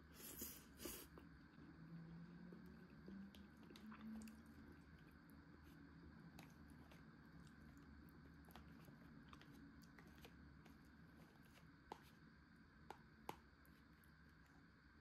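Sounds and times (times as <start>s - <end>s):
chewing soft food: 0.1s - 15.0s.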